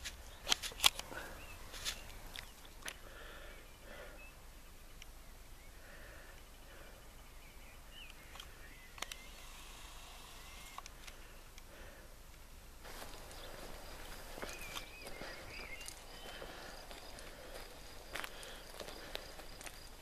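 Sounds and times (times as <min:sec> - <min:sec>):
sharp clicks: 0:00.0 - 0:01.3, 0:08.0 - 0:11.7
faint bird calls: 0:00.0 - 0:12.2, 0:12.9 - 0:20.0.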